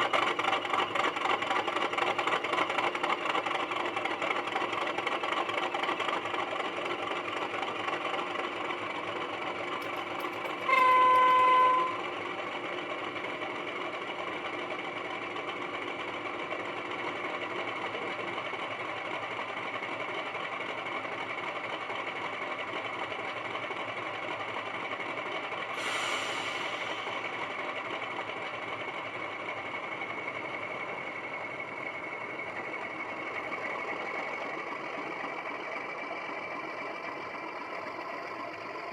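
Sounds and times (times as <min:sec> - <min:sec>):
model diesel engine through speaker: 0:00.0 - 0:38.9
locomotive horn blast: 0:09.8 - 0:12.2
hiss of air: 0:25.7 - 0:27.4.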